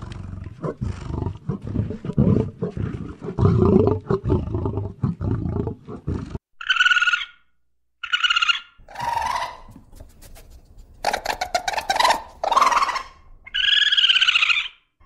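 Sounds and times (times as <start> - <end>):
deep rough animal roar: 0.0 - 6.4
high-pitched animal calls: 6.6 - 9.8, 11.0 - 14.9.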